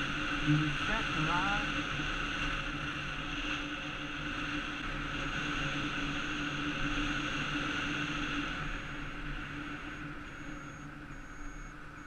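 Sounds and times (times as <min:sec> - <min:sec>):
electric motor whine: 0:00.0 - 0:12.0
wind and road noise: 0:00.0 - 0:12.0.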